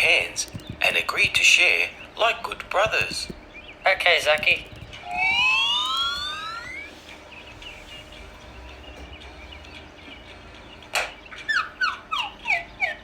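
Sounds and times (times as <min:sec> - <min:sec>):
faint birds chirping: 0:00.0 - 0:13.0
balloon bursting: 0:02.6 - 0:06.9
falling whistle-like notes: 0:05.1 - 0:06.9.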